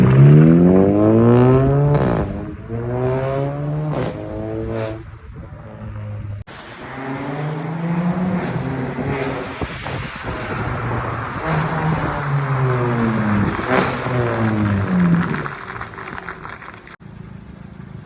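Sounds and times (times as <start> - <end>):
car engine accelerating: 0.0 - 18.0
exhaust crack on gear shift: 12.0 - 17.0.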